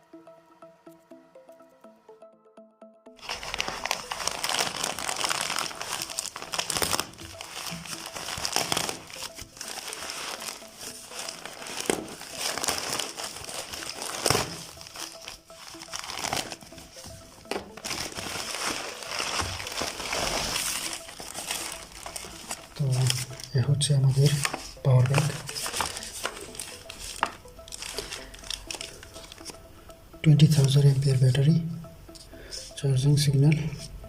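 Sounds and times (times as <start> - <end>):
packaging crinkling and crackling: 3.2 - 29.6.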